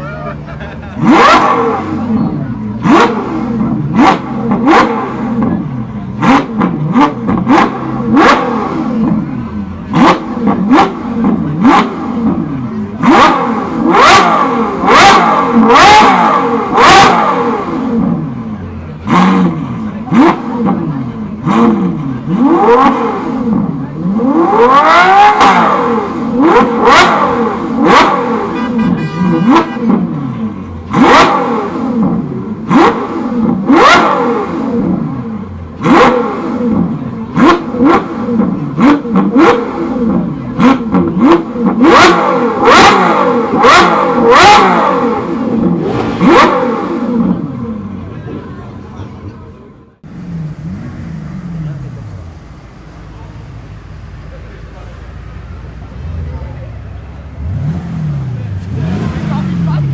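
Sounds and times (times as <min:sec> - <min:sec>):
car engine revving: 0:00.0 - 0:59.9
exhaust cracks: 0:29.4 - 0:49.4.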